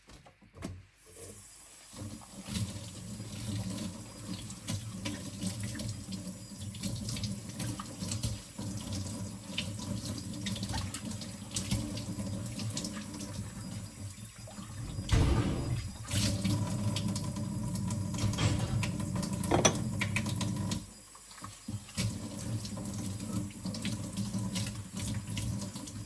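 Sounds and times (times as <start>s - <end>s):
tap water running and splashing: 0.6s - 26.0s
loud splash and knock: 14.7s - 16.6s, 18.2s - 20.0s
dishes clinking: 18.2s - 20.2s.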